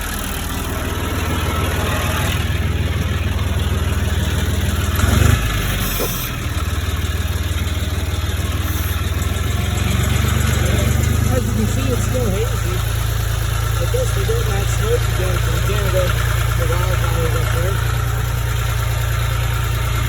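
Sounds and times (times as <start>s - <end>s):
tractor engine running: 0.0s - 20.0s.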